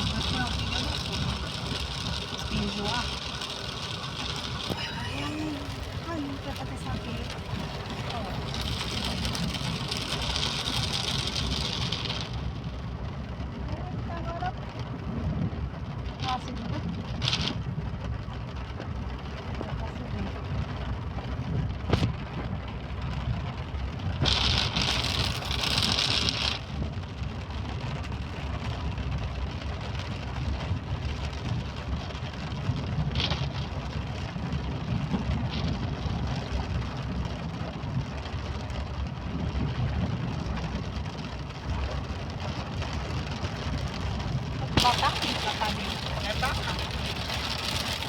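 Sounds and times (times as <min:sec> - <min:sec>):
rain hiss: 0:00.0 - 0:48.0
vehicle engine and road rumble: 0:00.0 - 0:48.0.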